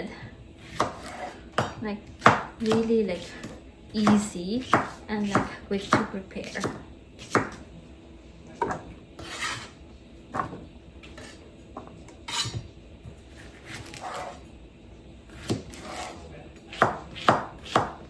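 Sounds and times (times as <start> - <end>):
knife scraping: 0.6 - 1.4, 9.2 - 9.8, 11.0 - 11.4, 12.2 - 12.7, 13.3 - 14.5, 15.3 - 16.3
knife chopping on cutting board: 0.6 - 7.6, 8.6 - 9.7, 11.2 - 14.5, 15.3 - 18.0.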